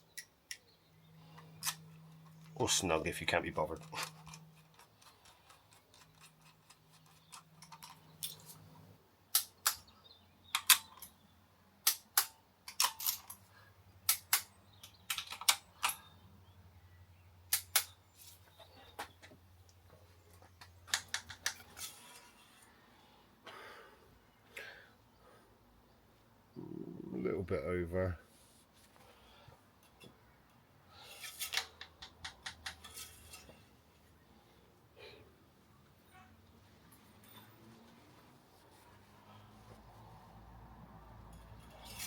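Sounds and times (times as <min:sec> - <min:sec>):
metallic clicks of hand tools: 0:09.3 - 0:09.9, 0:10.5 - 0:11.2, 0:11.8 - 0:13.4, 0:14.1 - 0:16.0, 0:17.5 - 0:18.0, 0:20.6 - 0:22.0, 0:31.2 - 0:33.5
faint low hum: 0:22.3 - 0:28.4.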